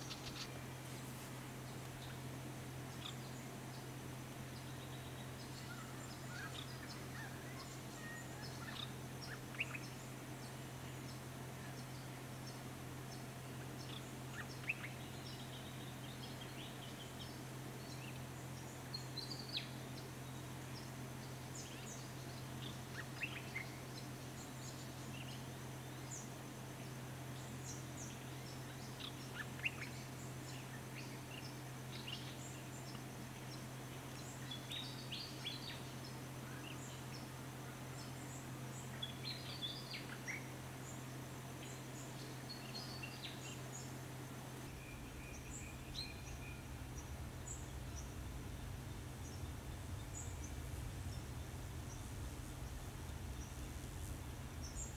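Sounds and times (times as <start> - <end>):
low background hum: 0.0 - 54.9
small birds chirping: 0.0 - 54.9
bird trill: 44.7 - 54.9.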